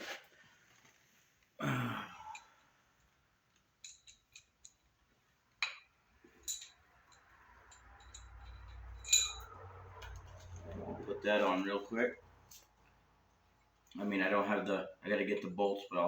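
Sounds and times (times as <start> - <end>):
metal chain and gears clinking: 3.8 - 5.0, 6.2 - 10.8.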